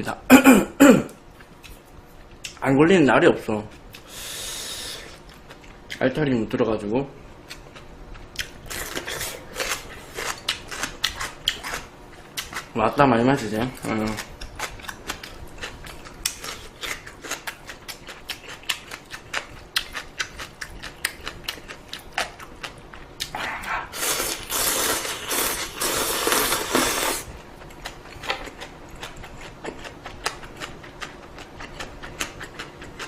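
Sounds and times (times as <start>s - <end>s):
crunchy chewing: 7.4s - 12.7s, 13.7s - 33.0s
slurping noodles: 23.8s - 27.3s.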